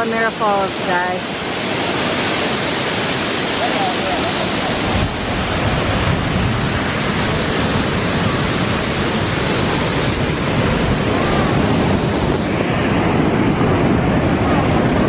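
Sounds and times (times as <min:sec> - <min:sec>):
surf washing in: 0:00.0 - 0:15.0
waterfall pouring: 0:00.4 - 0:11.8.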